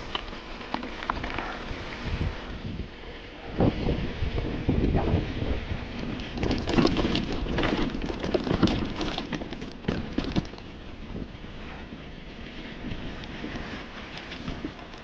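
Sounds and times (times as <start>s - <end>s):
bike rattling over rough trail: 0.0s - 15.0s
wind on microphone: 1.2s - 9.0s.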